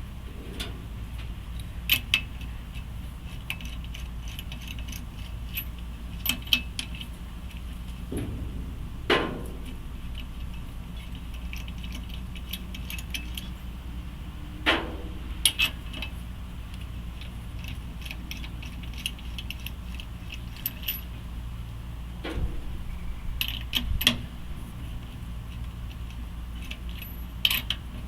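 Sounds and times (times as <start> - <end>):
steady low hum: 0.0 - 28.0
sharp ringing metal clanks: 8.1 - 10.6.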